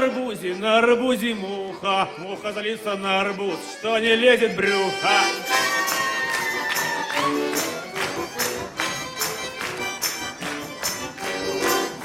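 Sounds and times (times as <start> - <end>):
button accordion dance tune: 0.0 - 12.0
sharp percussive beats: 6.8 - 12.0.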